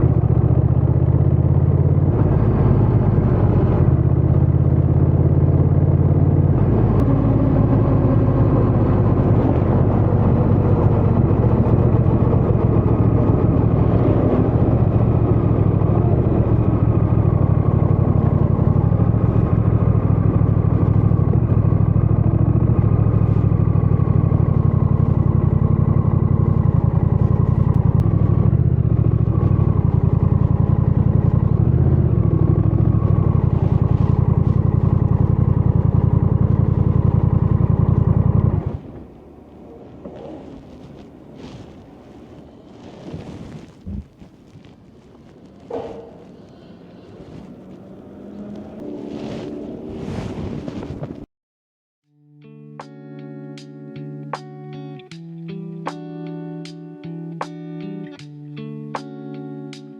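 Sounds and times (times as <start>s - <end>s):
motorcycle engine running: 0.0s - 51.3s.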